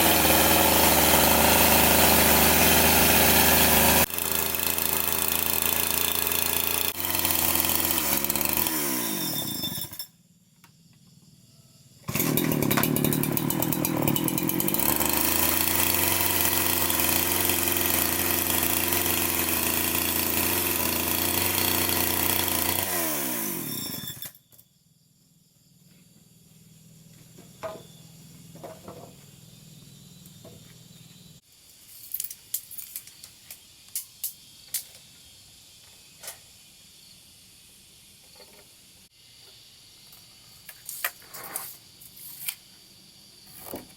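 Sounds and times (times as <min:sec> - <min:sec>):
power tool motor whining: 0:00.0 - 0:10.0, 0:12.1 - 0:24.3.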